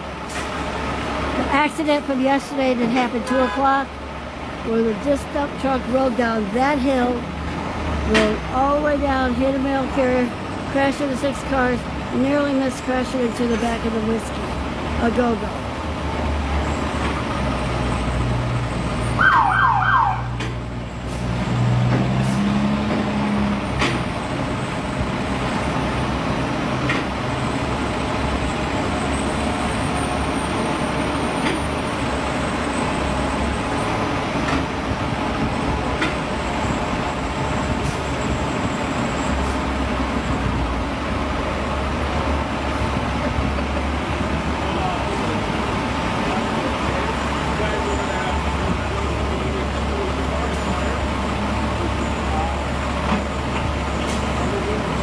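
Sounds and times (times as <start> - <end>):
street traffic: 0.0 - 55.0
truck engines humming: 0.0 - 55.0
siren chirps: 19.2 - 20.4.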